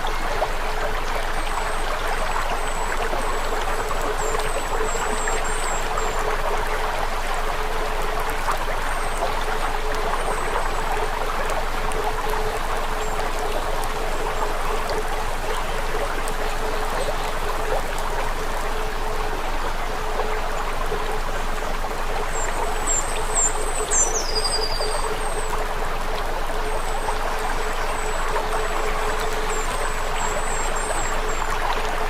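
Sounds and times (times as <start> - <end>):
rushing water: 0.0 - 32.0.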